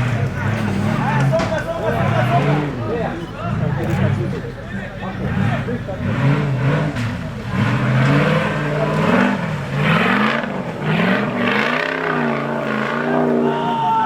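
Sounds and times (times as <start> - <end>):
off-road engine revving: 0.0 - 14.0.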